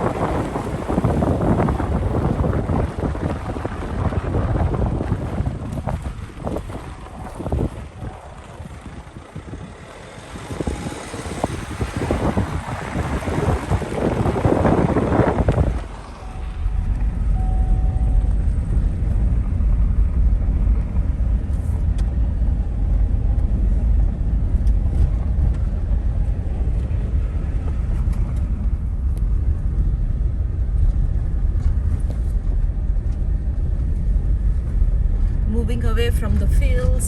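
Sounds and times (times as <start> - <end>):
loud rush of noise: 0.0 - 21.6
car engine and road noise: 0.0 - 37.0.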